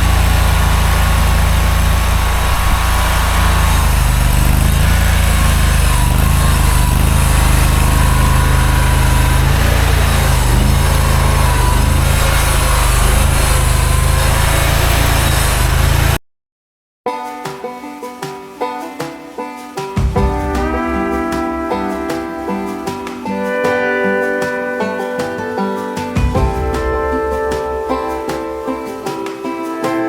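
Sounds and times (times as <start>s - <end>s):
skid steer engine running: 0.0s - 16.2s.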